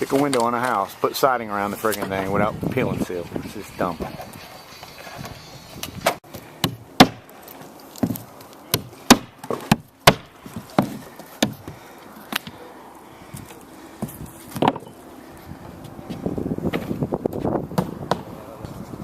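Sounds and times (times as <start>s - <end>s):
hammer strikes: 6.6s - 7.3s, 8.7s - 11.6s.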